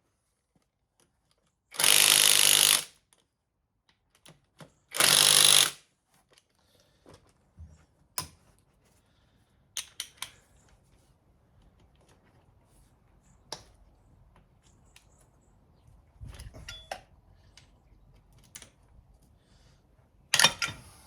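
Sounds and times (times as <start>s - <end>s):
power tool undoing bolts: 1.7s - 2.9s, 4.9s - 5.8s, 20.3s - 21.0s
light metal clinks and knocks: 16.4s - 17.1s.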